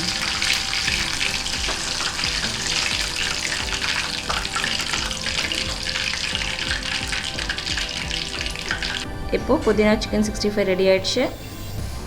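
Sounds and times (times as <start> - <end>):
chicken deep-frying in oil: 0.0 - 9.1.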